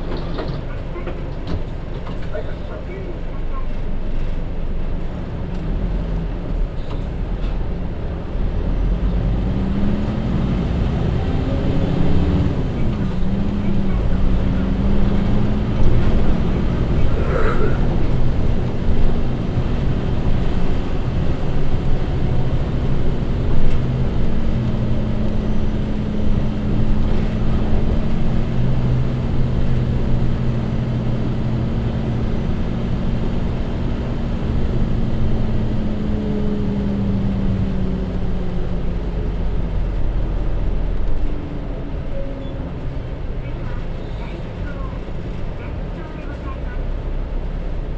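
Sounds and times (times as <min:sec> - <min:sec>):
bus engine drone: 0:00.0 - 0:47.9
road noise: 0:00.0 - 0:47.9.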